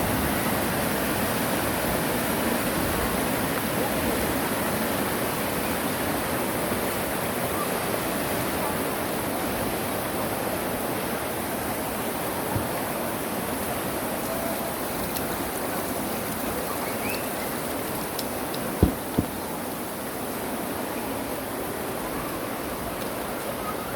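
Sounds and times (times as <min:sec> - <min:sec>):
stream flowing over rocks: 0:00.0 - 0:23.9
sharp knock: 0:18.8 - 0:19.4.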